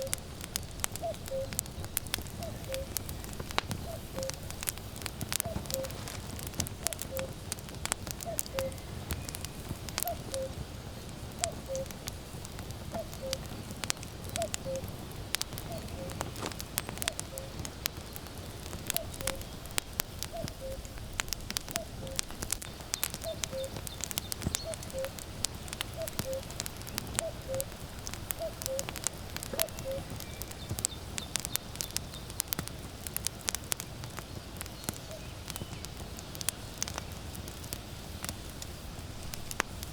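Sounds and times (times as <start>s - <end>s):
cuckoo calling: 0.0s - 0.2s, 0.9s - 4.6s, 5.4s - 6.2s, 6.8s - 7.5s, 8.2s - 10.6s, 11.4s - 12.0s, 12.9s - 13.5s, 14.4s - 15.0s, 15.6s - 17.8s, 18.9s - 19.6s, 20.2s - 20.9s, 21.7s - 22.3s, 23.0s - 25.2s, 25.9s - 27.8s, 28.4s - 30.7s
firewood crackling and popping: 0.0s - 39.9s.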